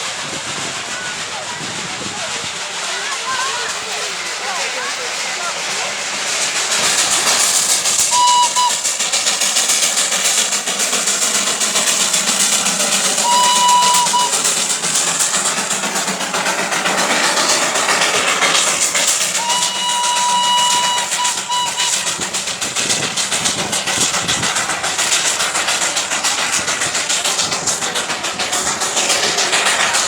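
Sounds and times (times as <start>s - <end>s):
train passing with hissing rush: 0.0s - 30.0s
train whistle: 8.0s - 9.1s, 13.2s - 14.7s, 19.3s - 22.3s.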